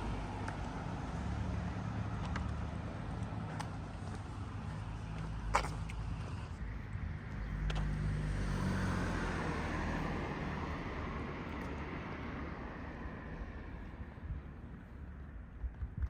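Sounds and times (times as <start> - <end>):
car driving past: 7.7 - 11.3.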